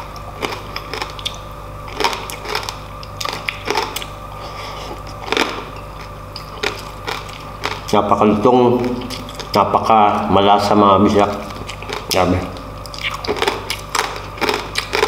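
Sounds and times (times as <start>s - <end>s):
crunching crispy food in mouth: 0.0s - 8.0s, 11.4s - 15.0s.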